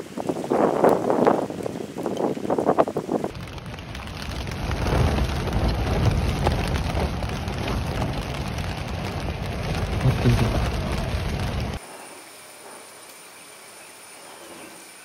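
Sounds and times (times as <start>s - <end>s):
wind rumble: 0.0s - 11.8s
rain pattering on a tent: 0.0s - 14.2s.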